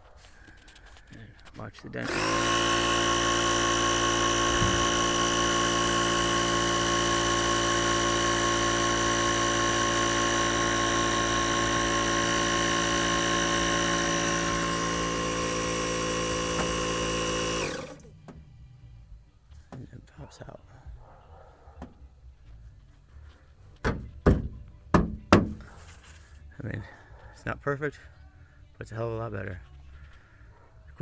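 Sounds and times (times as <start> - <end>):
air compressor motor humming: 1.6 - 18.4.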